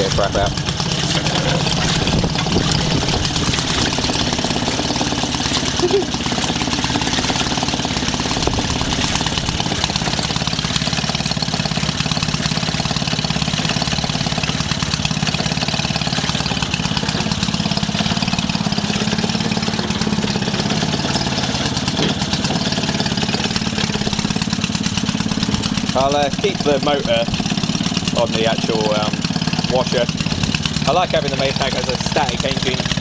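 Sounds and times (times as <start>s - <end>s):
two-stroke engine running: 0.0s - 33.0s.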